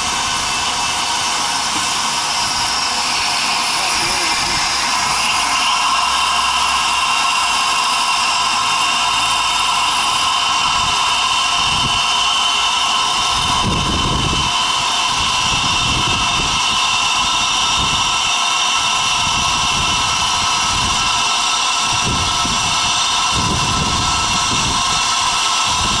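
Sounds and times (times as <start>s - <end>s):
low rumble of moving locomotive: 0.0s - 18.3s
steam locomotive hissing: 0.0s - 26.0s.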